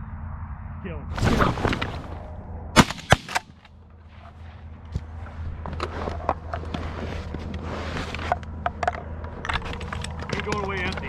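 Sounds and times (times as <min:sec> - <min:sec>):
shotgun blasts: 0:02.8 - 0:03.6.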